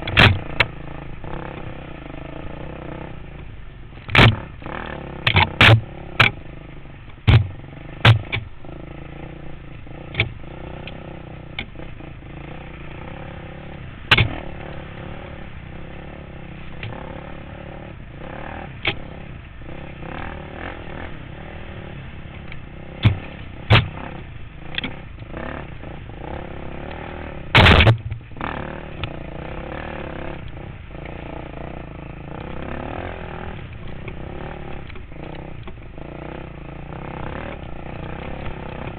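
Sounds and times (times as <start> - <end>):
dirt bike engine running: 0.0 - 38.9
sharp loud knocks: 4.1 - 4.5, 5.2 - 6.4, 7.2 - 8.5, 14.1 - 14.4, 23.0 - 24.0, 27.6 - 28.2.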